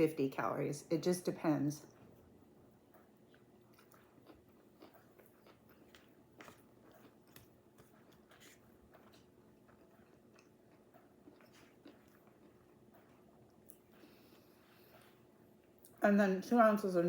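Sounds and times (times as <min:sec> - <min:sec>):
faint steady hum: 0:00.0 - 0:17.0
close-up chewing: 0:01.8 - 0:16.0.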